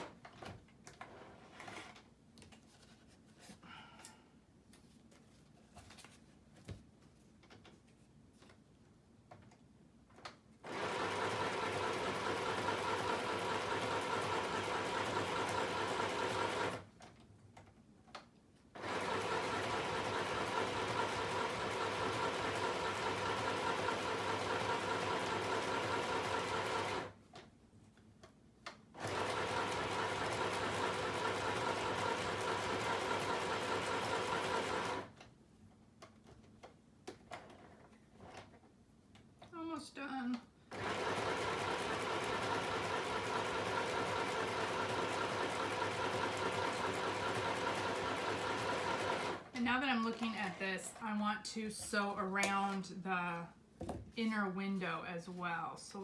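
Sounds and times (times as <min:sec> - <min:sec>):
sewing machine stitching: 0:10.6 - 0:16.9, 0:18.8 - 0:27.2, 0:29.0 - 0:35.2, 0:40.7 - 0:50.6.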